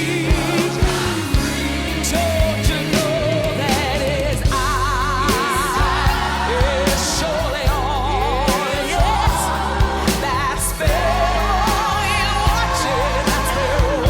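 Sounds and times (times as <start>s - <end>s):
bass: 0.0s - 14.0s
drum beats: 0.0s - 14.0s
woman singing with vibrato: 0.0s - 14.0s.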